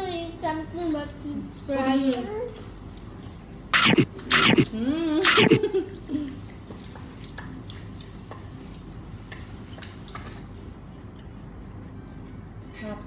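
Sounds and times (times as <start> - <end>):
chewing: 4.1 - 12.8
clicks and taps of eating: 6.2 - 11.8.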